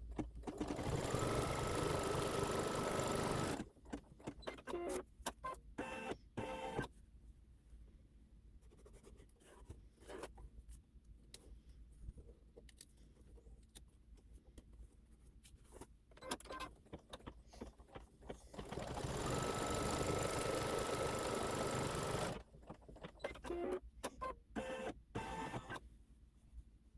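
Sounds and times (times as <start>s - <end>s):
embroidery machine stitching: 0.4s - 4.6s, 18.4s - 22.5s.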